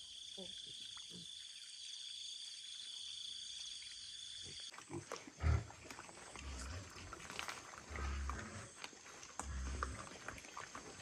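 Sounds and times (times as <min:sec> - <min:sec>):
pigs grunting: 0:04.8 - 0:11.0.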